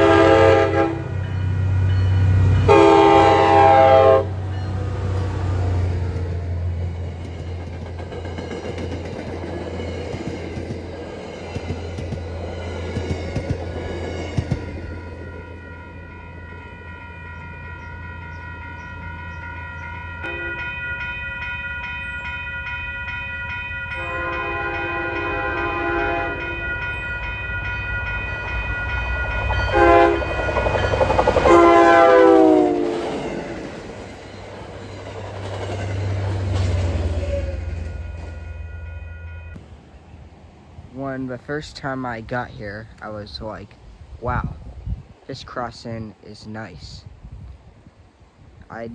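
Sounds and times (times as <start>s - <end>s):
train horn blasts: 0.0s - 1.4s, 2.6s - 4.6s, 16.8s - 20.9s, 23.9s - 26.9s, 29.5s - 30.6s, 31.2s - 33.6s
crossing bell ringing: 0.0s - 39.6s.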